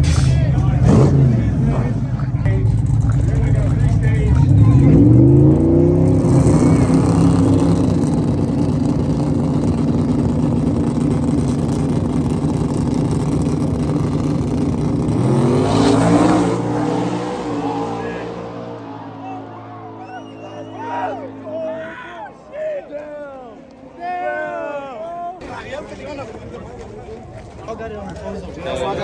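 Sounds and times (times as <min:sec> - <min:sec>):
engine revving: 0:00.0 - 0:22.0
truck engines at full throttle: 0:00.0 - 0:25.4.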